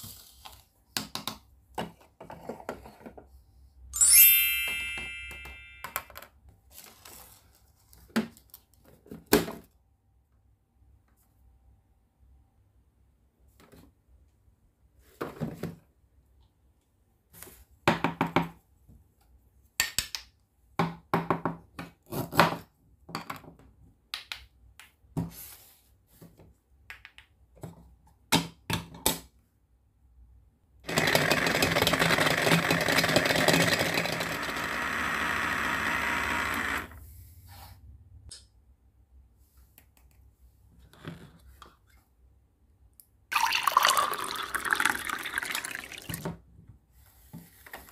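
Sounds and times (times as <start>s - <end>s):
toy blender motor whirring: 30.9s - 37.0s
liquid pouring: 43.3s - 46.2s.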